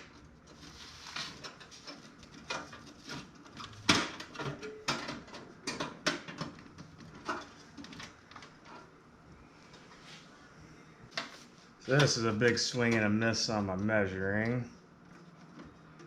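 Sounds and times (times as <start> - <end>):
parts knocking and clicking in metal case: 1.4 - 8.5.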